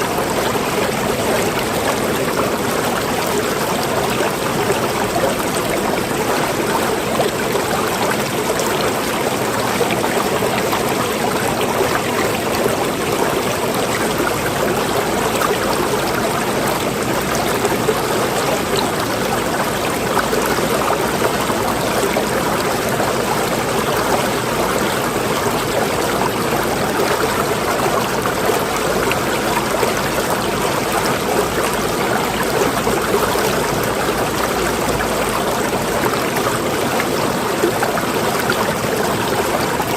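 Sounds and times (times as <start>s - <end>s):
water running steadily: 0.0s - 39.9s.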